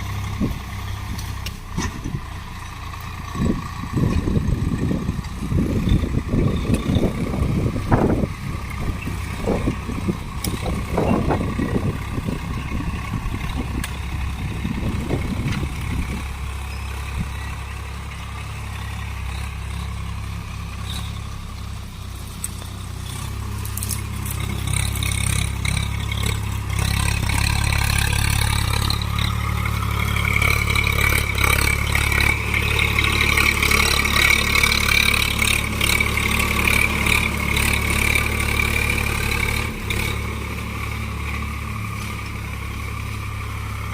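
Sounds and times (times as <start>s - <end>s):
tractor diesel engine running: 0.0s - 43.9s
clattering engine knocks: 3.3s - 17.4s.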